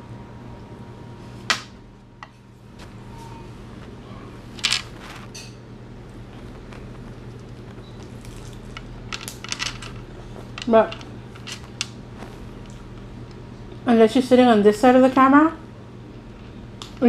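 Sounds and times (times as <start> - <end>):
low electrical hum: 0.0 - 17.0
person chewing crispy food: 6.0 - 13.0.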